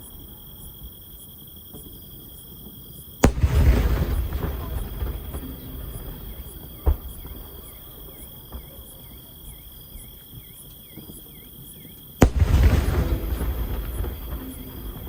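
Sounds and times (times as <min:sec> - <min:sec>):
insects chirping: 0:00.0 - 0:15.0
firework bangs: 0:03.2 - 0:10.0, 0:12.2 - 0:15.0.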